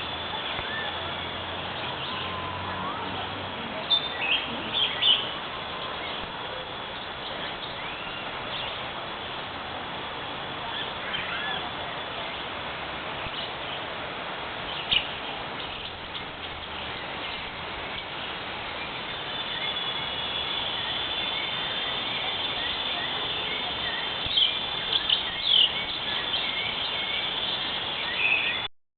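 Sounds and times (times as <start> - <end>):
whistled bird notes: 0.0 - 3.1, 3.8 - 8.8, 18.8 - 28.7
birds chirping: 0.0 - 13.9, 14.6 - 28.7
background hiss: 0.0 - 28.7.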